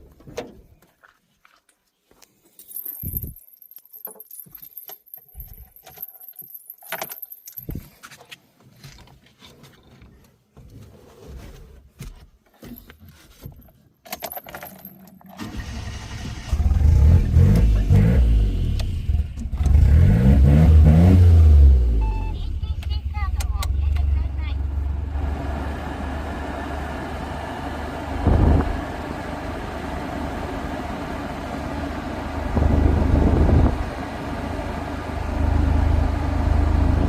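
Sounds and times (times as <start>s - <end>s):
keys jangling: 2.5s - 8.0s, 12.7s - 15.4s
car engine starting and revving: 15.3s - 37.0s.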